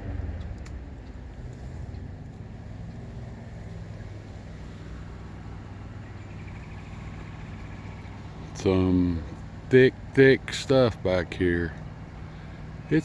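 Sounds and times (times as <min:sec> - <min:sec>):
rumbling background: 0:00.0 - 0:06.6
low engine-like hum: 0:00.0 - 0:13.0.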